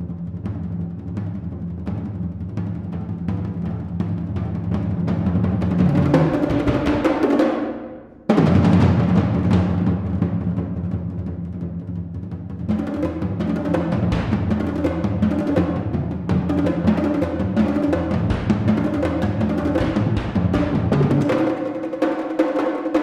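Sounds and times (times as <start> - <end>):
rapid low drum strokes: 8.3 - 21.9.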